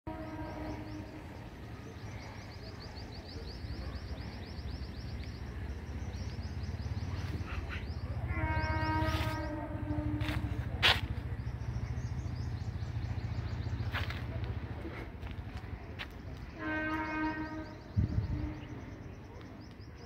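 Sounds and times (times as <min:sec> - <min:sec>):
train horn: 0:00.1 - 0:01.4, 0:08.2 - 0:10.6, 0:16.5 - 0:19.0
passenger train rumbling past: 0:00.1 - 0:20.0.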